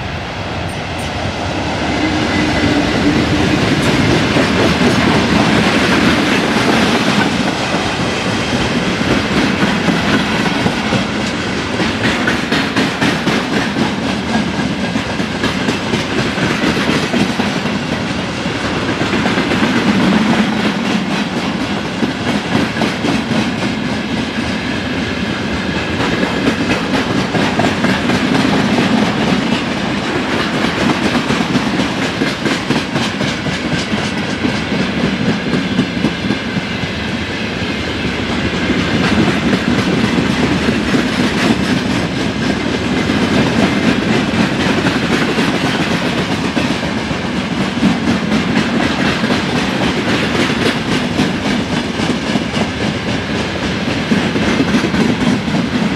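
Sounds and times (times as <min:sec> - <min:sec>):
train wheels clattering on rails: 0:00.0 - 0:55.9.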